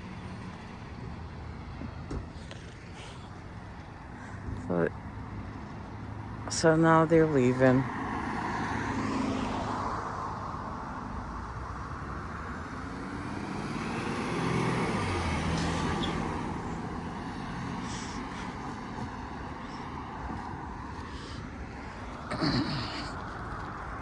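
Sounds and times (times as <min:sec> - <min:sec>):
car engine passing: 0:04.0 - 0:24.0.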